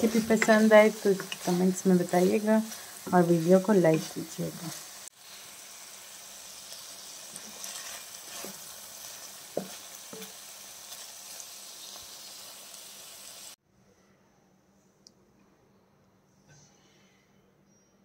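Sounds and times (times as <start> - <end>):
food sizzling in a pan: 0.0 - 13.6
wooden spatula knocking pan: 9.5 - 10.3.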